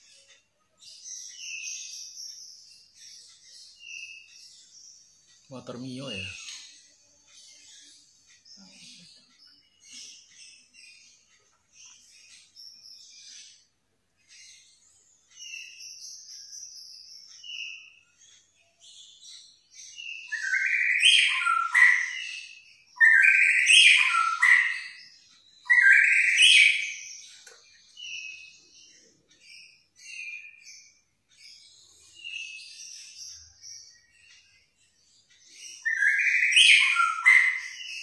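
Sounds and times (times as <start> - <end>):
songbird singing whistled phrases: 20.1 - 25.0, 25.6 - 27.1, 35.7 - 38.0.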